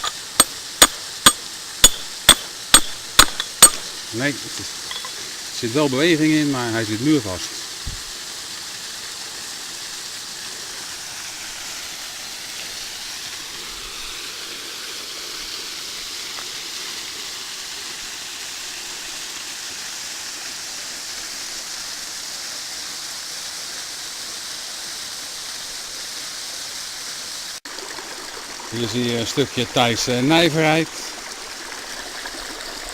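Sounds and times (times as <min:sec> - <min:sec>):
waterfall rushing: 0:00.0 - 0:15.4, 0:27.4 - 0:31.9.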